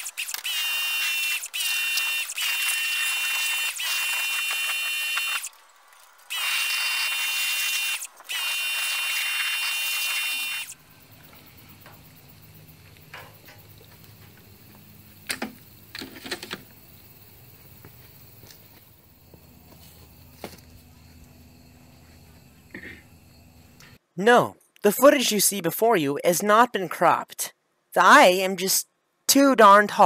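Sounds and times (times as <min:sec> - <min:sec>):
water jet spraying with whistle: 0:00.0 - 0:05.6, 0:06.3 - 0:10.8.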